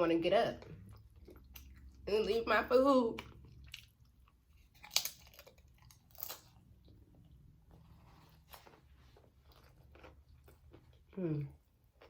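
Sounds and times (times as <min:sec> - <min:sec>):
chewing food: 0:00.5 - 0:02.4, 0:03.1 - 0:12.0
food crunching: 0:03.1 - 0:12.0.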